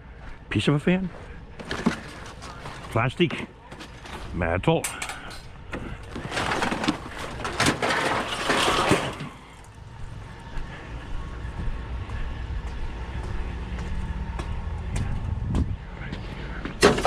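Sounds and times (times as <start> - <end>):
scrap metal clattering and banging: 1.6 - 9.8.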